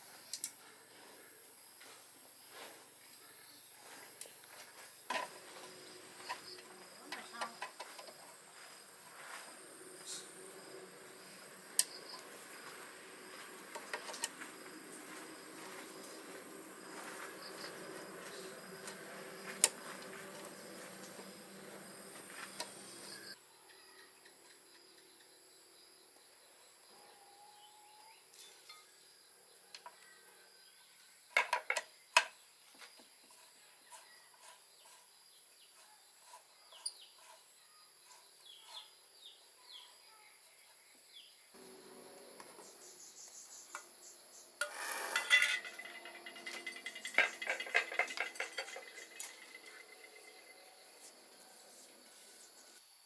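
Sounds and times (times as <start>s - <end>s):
insects chirping: 1.3s - 53.0s
metal tools clinking and clattering: 44.6s - 50.5s.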